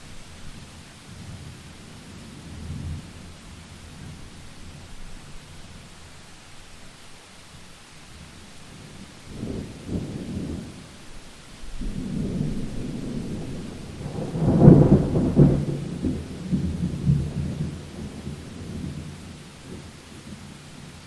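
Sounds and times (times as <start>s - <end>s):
steady rain: 0.0s - 21.0s
rolling thunder: 11.7s - 20.2s.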